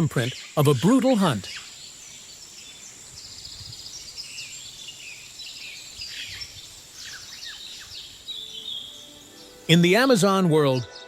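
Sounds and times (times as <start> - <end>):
bird chirps and trills: 0.0 - 11.0
high-pitched insect drone: 4.4 - 10.9.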